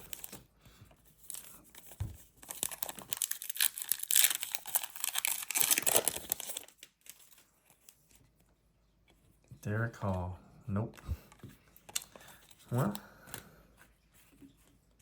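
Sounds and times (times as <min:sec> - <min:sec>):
foil wrapper tearing and crinkling: 0:02.4 - 0:07.4.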